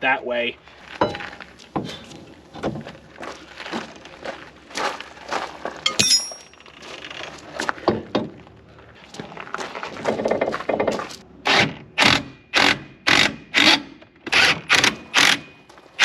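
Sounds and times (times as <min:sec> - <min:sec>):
hand tools and metal parts clinking: 0:05.8 - 0:06.8
ringing metallic clink: 0:05.9 - 0:06.5.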